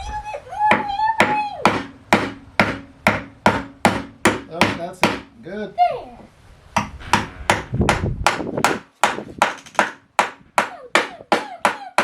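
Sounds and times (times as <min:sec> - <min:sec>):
hammer tapping nail into wood: 0:06.8 - 0:12.0.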